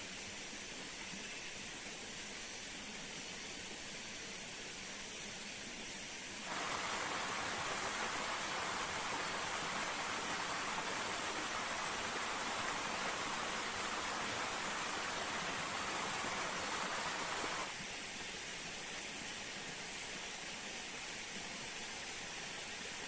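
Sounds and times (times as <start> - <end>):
waterfall rushing: 6.5 - 17.7.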